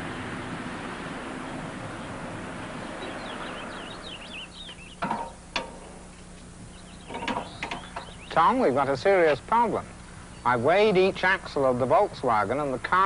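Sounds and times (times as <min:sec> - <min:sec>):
vehicle passing: 0:00.0 - 0:04.8
small birds chirping: 0:01.3 - 0:11.3
sharp knocks: 0:05.0 - 0:05.9.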